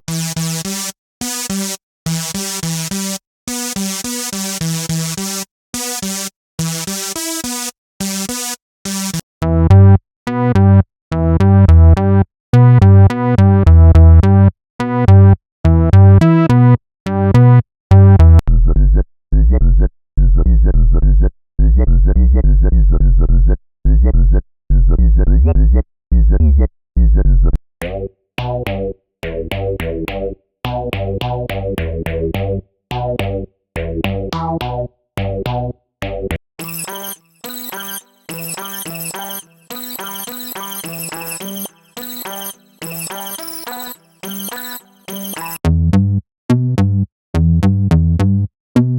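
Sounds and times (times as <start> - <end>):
synthesizer sequenced riffs: 36.6 - 45.6.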